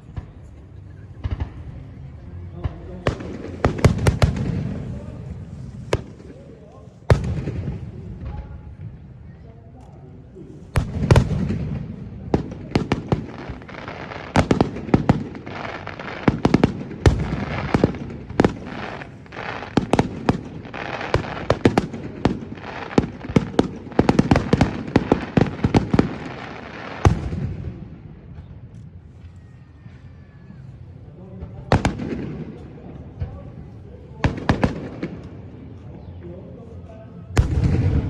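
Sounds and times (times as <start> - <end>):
fireworks bursting and crackling: 2.6 - 9.1, 10.6 - 29.3, 31.7 - 33.4, 34.2 - 35.7, 37.4 - 38.0.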